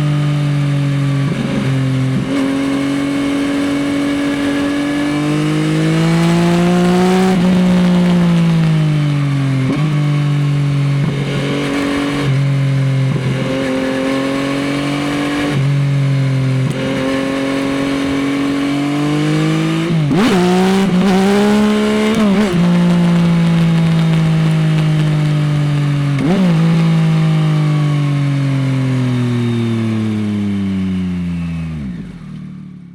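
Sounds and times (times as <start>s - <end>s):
motorcycle engine accelerating: 0.0s - 32.9s.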